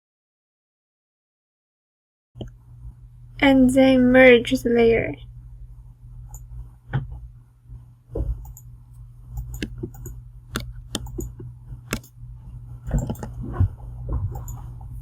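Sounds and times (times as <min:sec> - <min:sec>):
steady low hum: 0:02.4 - 0:15.0
mouse and keyboard clicks: 0:09.4 - 0:12.1, 0:12.9 - 0:13.4.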